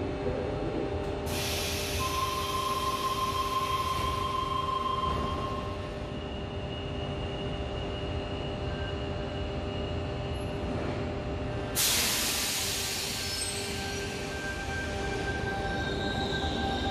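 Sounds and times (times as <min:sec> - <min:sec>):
train rumble and hum: 0:00.0 - 0:16.9
sudden loud hiss: 0:11.8 - 0:14.3.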